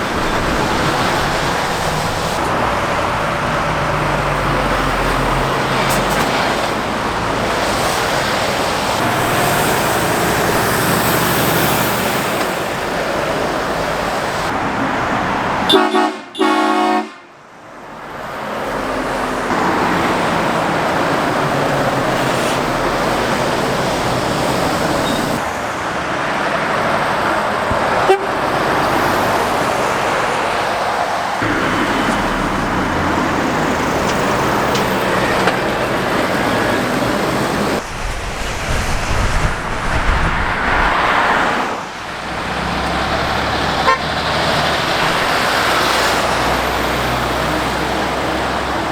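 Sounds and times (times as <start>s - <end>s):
road traffic passing: 0.0s - 48.9s
vehicle horn: 15.7s - 17.4s, 28.0s - 28.5s, 43.8s - 44.2s.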